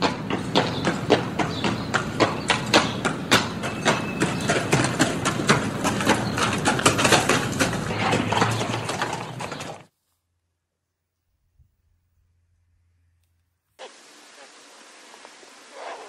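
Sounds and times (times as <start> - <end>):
horse hooves clip-clopping: 0.0 - 10.0, 13.8 - 16.0.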